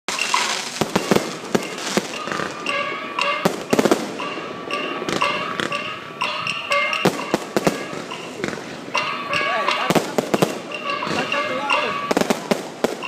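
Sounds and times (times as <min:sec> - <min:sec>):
electronic firecracker bangs: 0:00.1 - 0:05.9.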